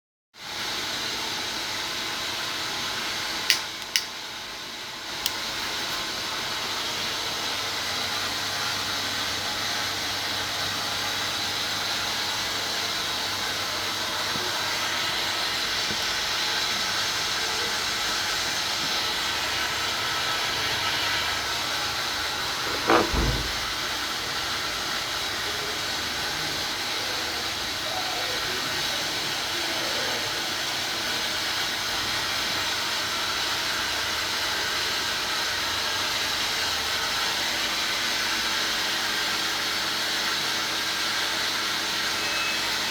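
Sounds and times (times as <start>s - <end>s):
gas boiler hissing: 0.4s - 42.9s
sharp clicks: 3.5s - 4.1s
thump: 22.6s - 23.8s.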